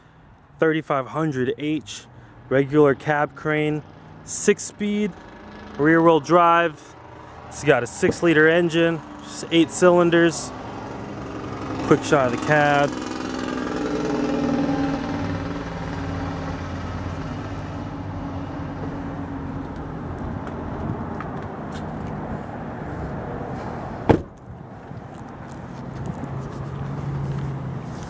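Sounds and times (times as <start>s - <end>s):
sharp thump: 24.1s - 24.4s.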